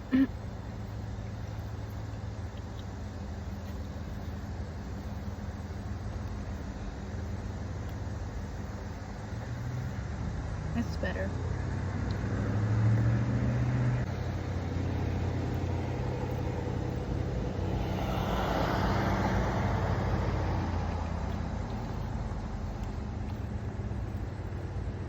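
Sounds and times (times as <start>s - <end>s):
car engine idling: 0.0s - 25.0s
vehicle passing: 9.2s - 25.0s.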